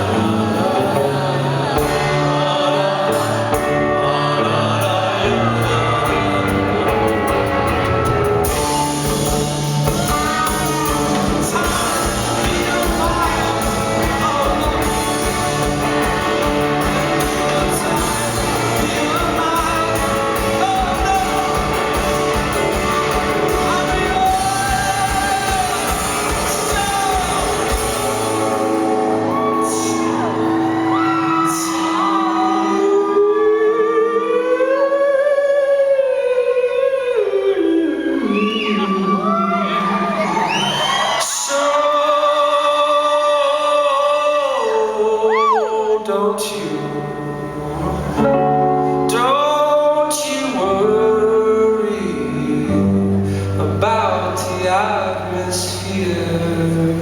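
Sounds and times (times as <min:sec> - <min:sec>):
live band music: 0:00.0 - 0:34.2
person singing: 0:00.0 - 0:57.0.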